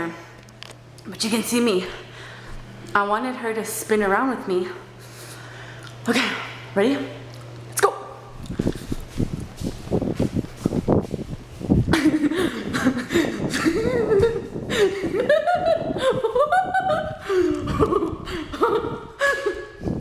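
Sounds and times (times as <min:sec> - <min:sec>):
woman laughing: 0:11.9 - 0:19.8.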